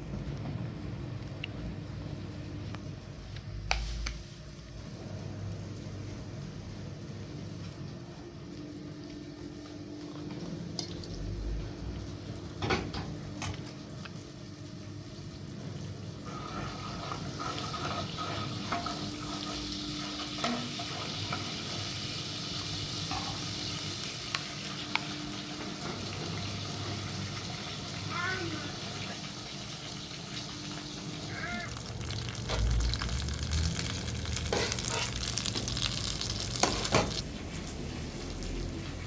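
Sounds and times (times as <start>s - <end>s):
food sizzling in a pan: 13.6s - 39.0s.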